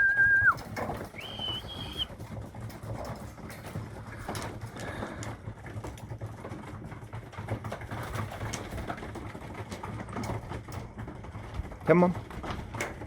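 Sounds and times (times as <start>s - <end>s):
pigeons cooing: 0.0s - 2.1s.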